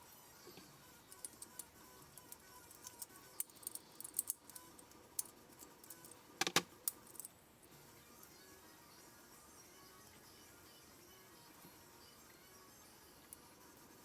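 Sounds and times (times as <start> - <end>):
faint background music: 0.0 - 14.0
metal parts clicking: 1.1 - 7.3.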